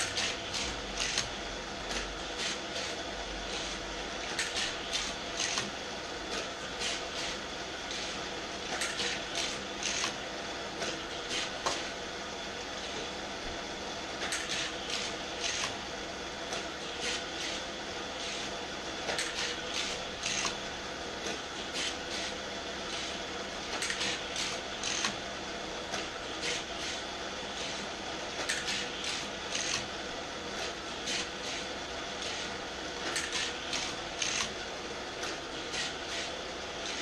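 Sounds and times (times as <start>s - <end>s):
toy booster whirring hum: 8.1s - 10.2s, 19.1s - 20.6s, 23.7s - 25.2s, 33.0s - 34.6s.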